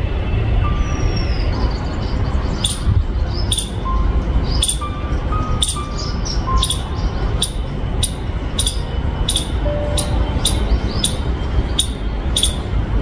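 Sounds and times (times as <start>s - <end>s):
small bird chirping: 1.2s - 12.8s
steady low rumble: 1.3s - 13.0s
whistled notes: 7.4s - 11.2s.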